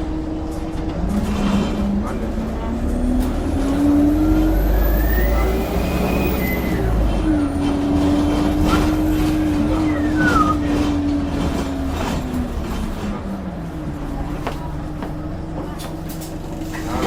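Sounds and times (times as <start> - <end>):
bus engine running: 0.0 - 17.0
turbo whistle: 9.8 - 10.7.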